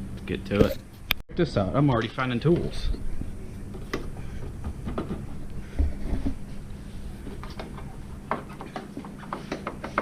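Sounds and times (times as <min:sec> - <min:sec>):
steady low hum: 0:00.0 - 0:10.0
parts clicking and knocking: 0:03.7 - 0:06.4, 0:07.2 - 0:10.0.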